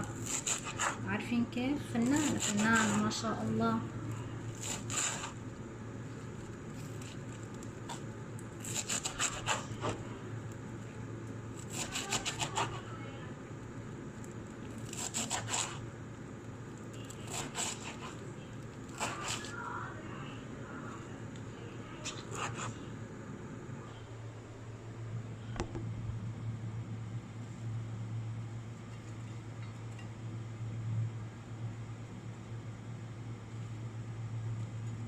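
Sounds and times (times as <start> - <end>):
knife cutting greens on a board: 0.0 - 1.1, 2.0 - 3.2, 4.5 - 5.4, 6.8 - 10.1, 11.6 - 12.9, 14.7 - 15.8, 17.0 - 18.2, 18.9 - 19.6, 22.0 - 22.8.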